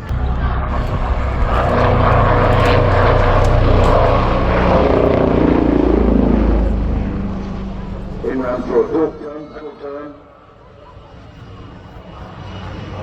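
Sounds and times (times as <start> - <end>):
helicopter rotor and turbine: 0.0 - 9.8.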